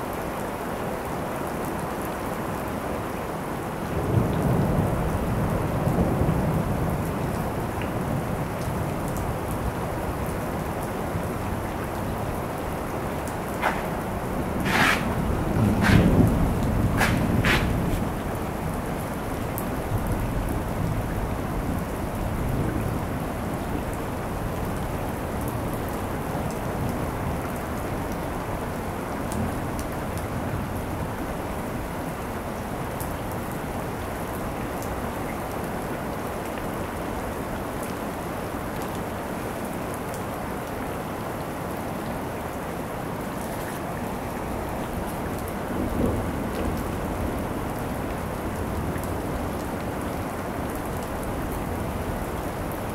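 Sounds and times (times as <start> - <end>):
steady rain falling: 0.0 - 52.9
thunder rumbling: 13.3 - 18.5.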